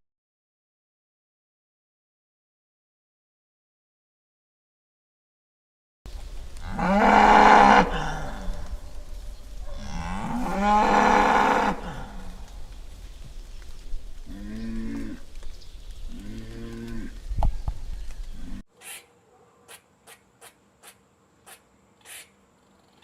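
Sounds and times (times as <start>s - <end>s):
cattle mooing: 6.6s - 8.7s, 9.8s - 12.4s, 16.1s - 17.2s.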